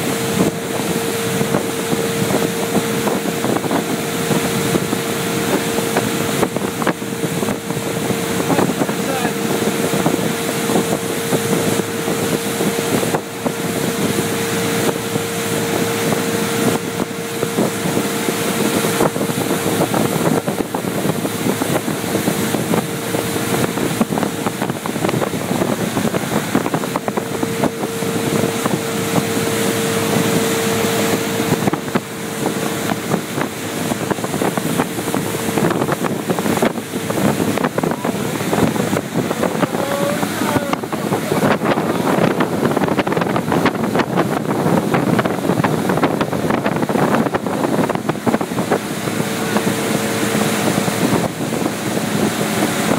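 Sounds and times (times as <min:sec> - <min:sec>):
motorboat engine whine: 0:00.0 - 0:52.9
wind noise on microphone: 0:00.0 - 0:52.9.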